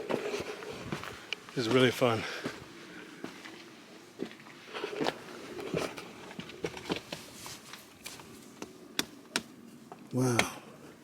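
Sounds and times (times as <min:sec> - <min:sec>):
footsteps on gritty sand and rock: 0:00.0 - 0:08.4.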